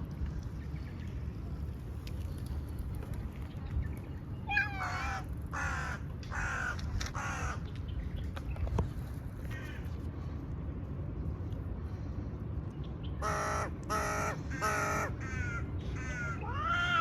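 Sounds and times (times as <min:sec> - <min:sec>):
low background rumble: 0:00.0 - 0:17.0
crow cawing: 0:04.8 - 0:07.6, 0:13.2 - 0:17.0.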